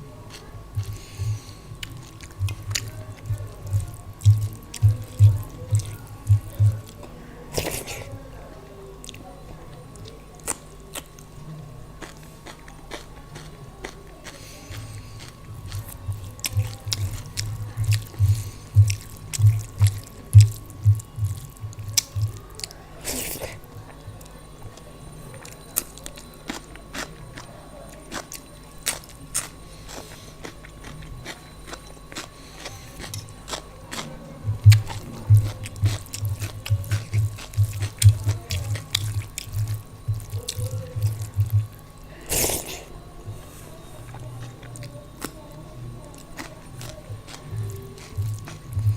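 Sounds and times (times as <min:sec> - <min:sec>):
person chewing food: 0:00.0 - 0:08.1, 0:09.0 - 0:48.9.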